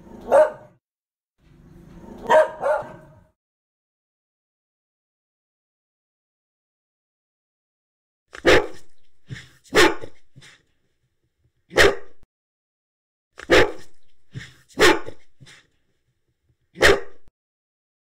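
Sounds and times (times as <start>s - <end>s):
dog barking: 0.1s - 0.8s, 2.2s - 3.3s, 8.4s - 8.9s, 9.7s - 10.3s, 11.7s - 12.2s, 13.4s - 15.6s, 16.8s - 17.3s.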